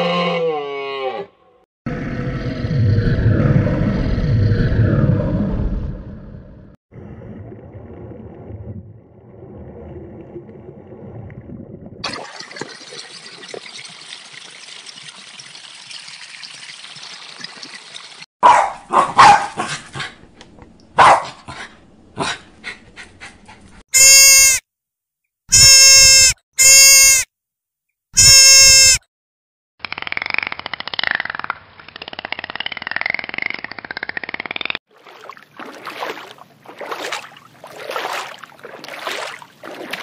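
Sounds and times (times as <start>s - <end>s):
loud steady-pitched calls: 24.0s - 24.6s, 25.5s - 27.2s, 28.2s - 29.0s.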